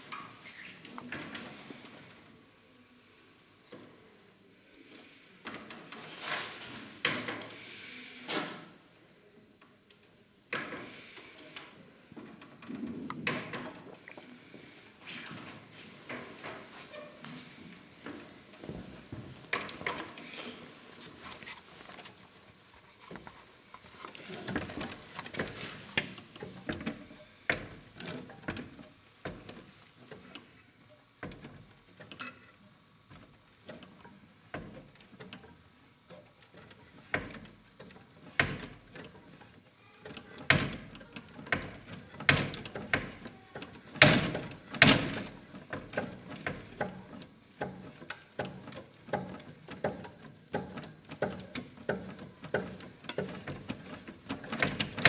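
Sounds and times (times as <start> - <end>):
mechanical clicks and knocks: 33.1 - 55.0.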